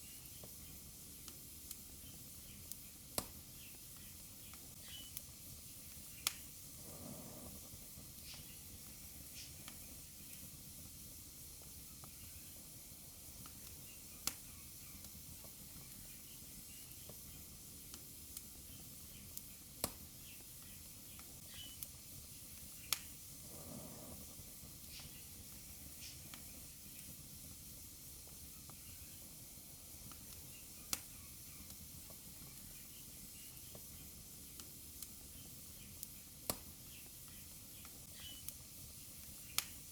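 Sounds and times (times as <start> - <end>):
fire crackles and pops: 0.0 - 39.9
fire hissing: 0.0 - 39.9
soft puff of flame: 6.2 - 8.6, 22.9 - 26.5.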